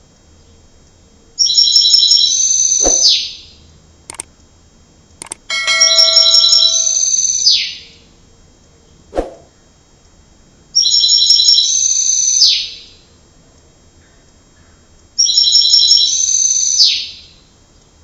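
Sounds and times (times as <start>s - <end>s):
short clicks: 2.8s - 3.1s, 5.2s - 5.5s.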